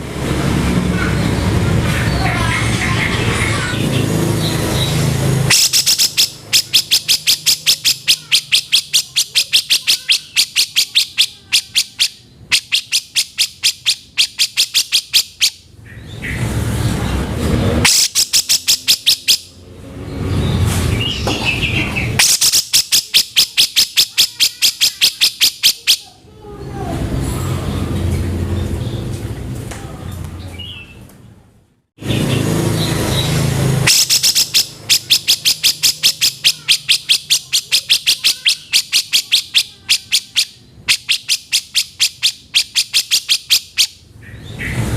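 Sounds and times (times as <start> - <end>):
rough noisy bird sound: 0.0 - 31.1, 32.0 - 44.9
bulbul calling sharp notes: 3.9 - 15.7, 17.8 - 19.6, 22.0 - 26.1, 33.0 - 44.0.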